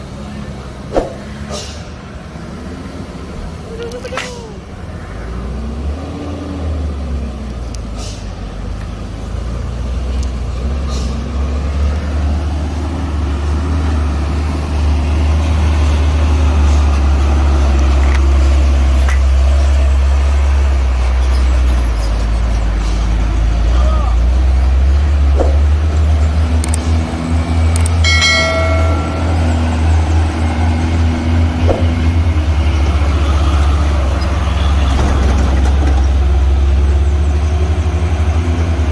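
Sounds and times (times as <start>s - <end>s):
heavy truck engines rumbling: 0.0s - 38.9s.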